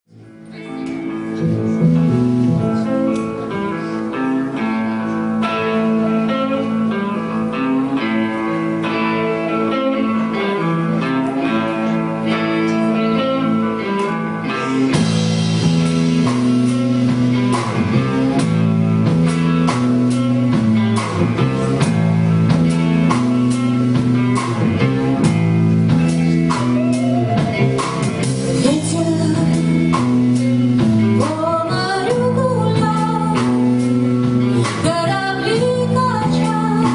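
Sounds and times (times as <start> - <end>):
guitar: 0.0 - 36.9
live band playing: 0.1 - 36.9
drums hitting: 14.6 - 31.4.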